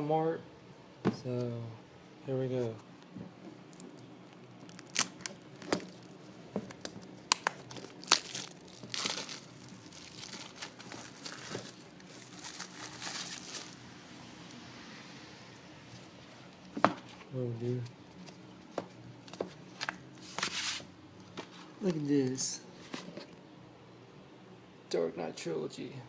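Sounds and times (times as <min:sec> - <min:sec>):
plastic crinkling: 0:03.7 - 0:13.8
plastic wrapping tearing: 0:03.7 - 0:13.8.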